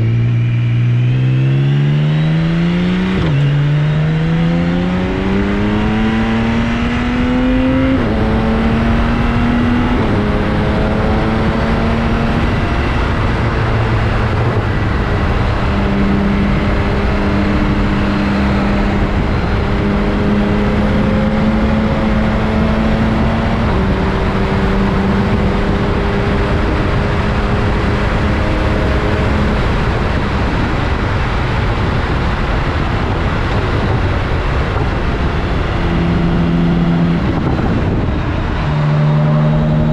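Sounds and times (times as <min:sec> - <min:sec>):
motorcycle engine accelerating: 0:00.0 - 0:39.9
road and wind noise: 0:00.0 - 0:39.9.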